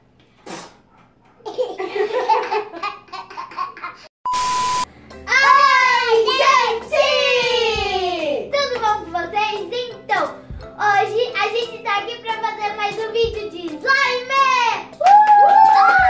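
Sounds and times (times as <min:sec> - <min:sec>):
short electronic beep: 0:04.3 - 0:04.9.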